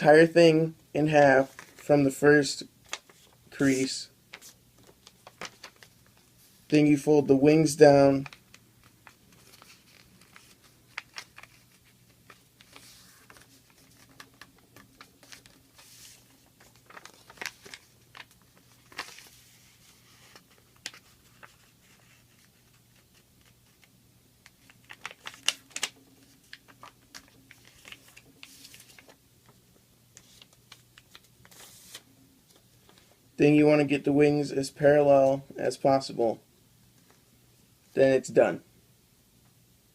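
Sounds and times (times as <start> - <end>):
faint steady hum: 0.0 - 39.9
paper crinkling and rustling: 1.4 - 1.9, 2.8 - 6.5, 8.2 - 33.2.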